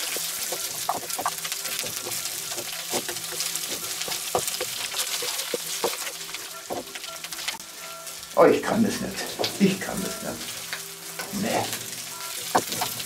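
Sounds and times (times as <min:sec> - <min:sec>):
wooden spatula scraping a pan: 0:00.0 - 0:08.2, 0:12.3 - 0:13.0
dumplings sizzling in butter: 0:00.0 - 0:13.0.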